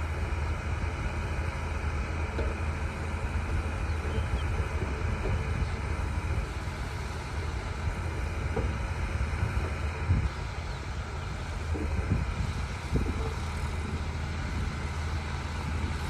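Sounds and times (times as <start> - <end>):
bulldozer diesel engine running: 0.0 - 16.0
faint knocks: 8.4 - 9.9.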